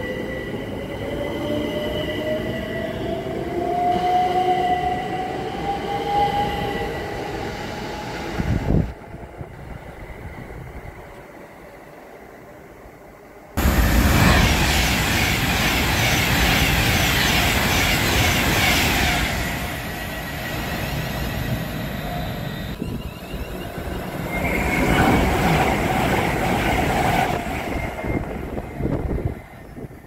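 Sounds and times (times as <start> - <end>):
train wheels on rails: 13.6 - 30.0.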